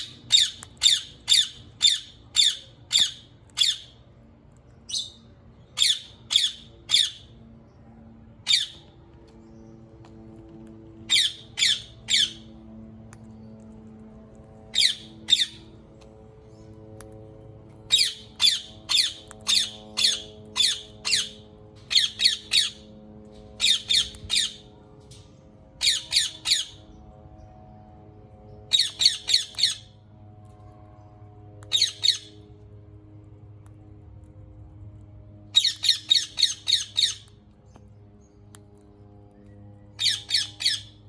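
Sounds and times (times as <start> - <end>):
parakeet squawking: 0.0 - 3.9, 5.8 - 7.3, 8.5 - 8.8, 11.1 - 12.5, 14.7 - 15.6, 17.9 - 22.8, 23.6 - 24.6, 35.6 - 37.2, 40.0 - 41.0.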